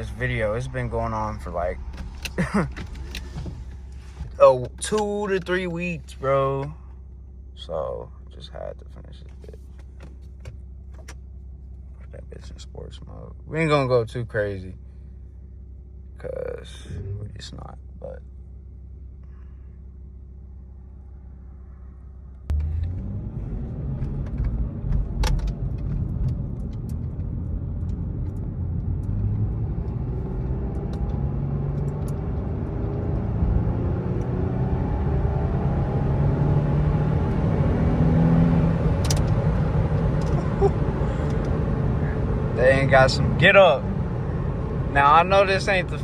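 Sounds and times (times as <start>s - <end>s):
car engine accelerating: 0.0s - 6.7s, 20.7s - 46.0s
road and wind noise: 0.0s - 7.4s, 20.2s - 46.0s.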